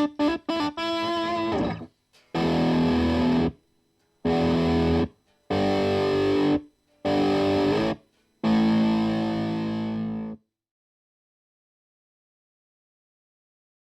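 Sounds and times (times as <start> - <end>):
distorted electric guitar chords: 0.0 - 3.6, 4.2 - 10.4.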